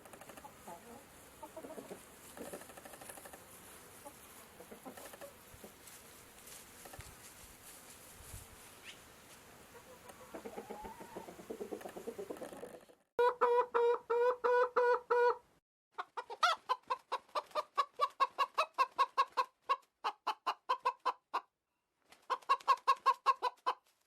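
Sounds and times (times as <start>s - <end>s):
chickens clucking: 0.0s - 6.0s, 9.7s - 21.5s, 22.1s - 23.9s
background hiss: 0.0s - 12.9s.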